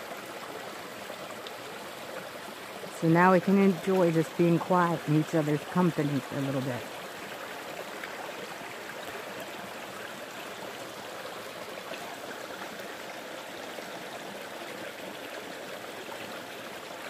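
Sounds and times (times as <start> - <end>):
creek flowing over rocks: 0.0 - 17.0.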